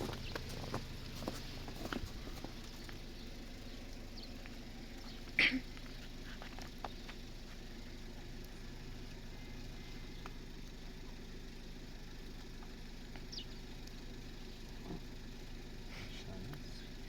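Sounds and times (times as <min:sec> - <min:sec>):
motor idling hum: 0:00.0 - 0:17.0
faint clicks: 0:12.2 - 0:14.0.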